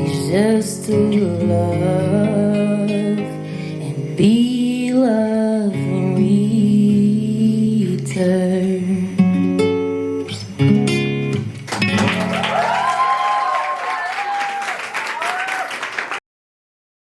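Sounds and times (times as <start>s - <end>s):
acoustic guitar strumming: 0.0s - 12.4s.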